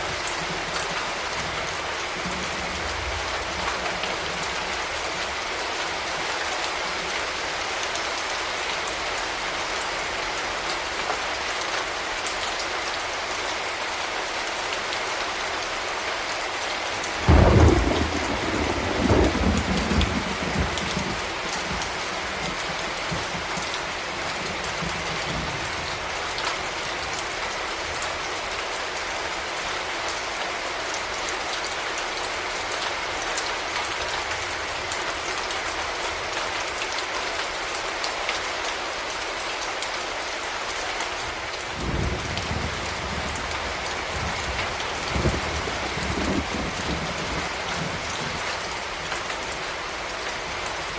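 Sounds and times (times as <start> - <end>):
steady rain falling: 0.0 - 50.9
thunder clap rolling: 17.3 - 21.8.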